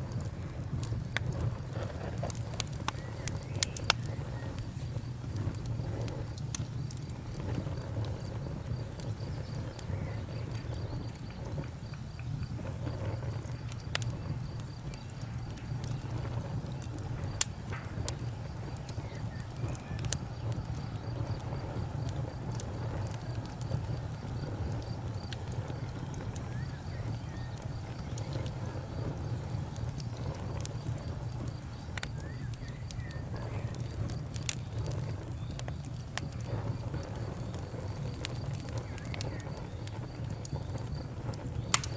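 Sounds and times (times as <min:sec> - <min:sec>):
campfire crackling and popping: 0:00.0 - 0:41.9.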